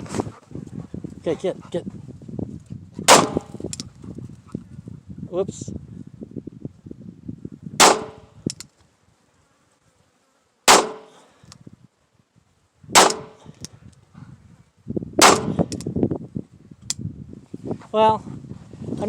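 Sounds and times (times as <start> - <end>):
sharp pistol shots: 3.1 - 3.6, 7.8 - 8.3, 10.7 - 11.2, 12.9 - 13.5, 15.2 - 15.8.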